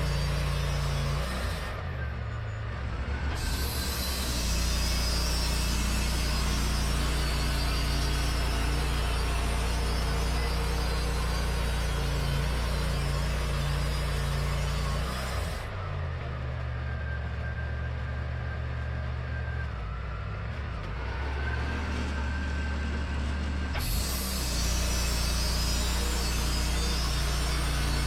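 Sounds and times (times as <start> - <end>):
sawmill engine humming: 0.0 - 28.0
saw blade cutting wood hiss: 3.4 - 15.7, 23.7 - 28.0.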